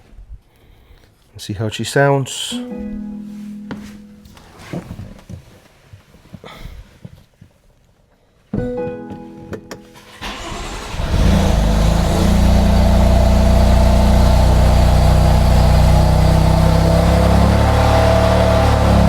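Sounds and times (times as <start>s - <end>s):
car engine starting and idling: 9.9s - 19.0s.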